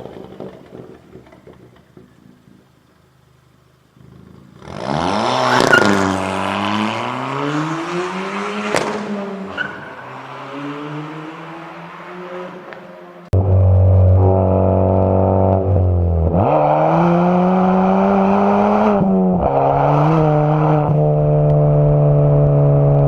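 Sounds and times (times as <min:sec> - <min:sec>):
car engine revving: 0:00.0 - 0:23.0
loud steady tone: 0:13.4 - 0:16.1.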